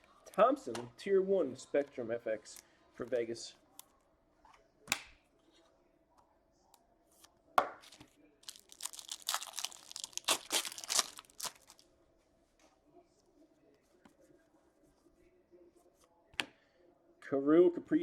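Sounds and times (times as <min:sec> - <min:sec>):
foil wrapper tearing and crinkling: 0:08.4 - 0:11.8.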